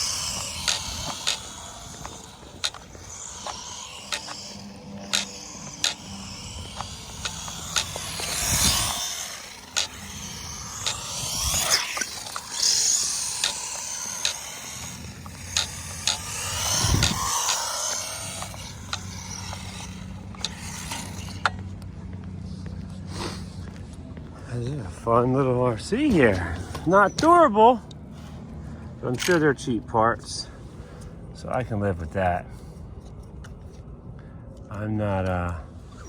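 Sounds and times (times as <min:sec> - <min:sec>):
toy truck rolling and scraping: 0:00.0 - 0:22.4.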